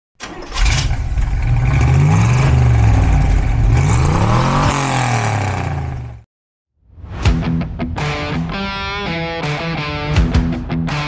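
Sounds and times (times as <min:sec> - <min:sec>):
engine revving: 0:00.2 - 0:06.3.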